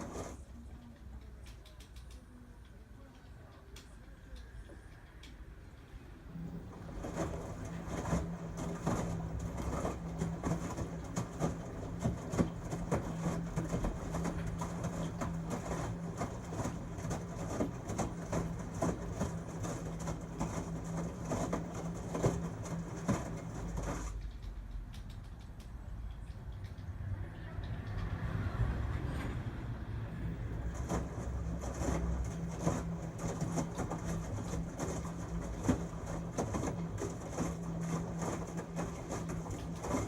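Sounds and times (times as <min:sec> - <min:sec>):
washing machine motor hum: 0:00.0 - 0:01.8, 0:02.4 - 0:24.3, 0:26.6 - 0:40.0
laundry tumbling knocks: 0:06.6 - 0:24.2, 0:30.6 - 0:40.0.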